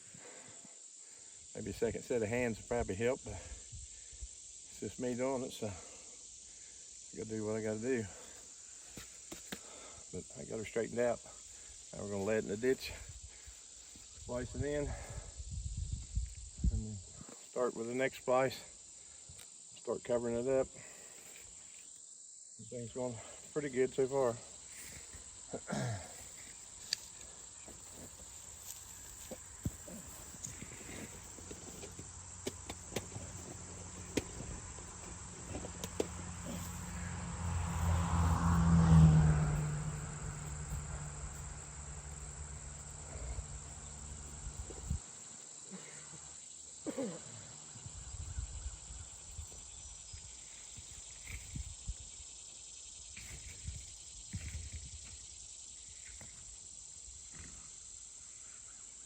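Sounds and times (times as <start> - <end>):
crickets chirring: 0.0 - 59.0.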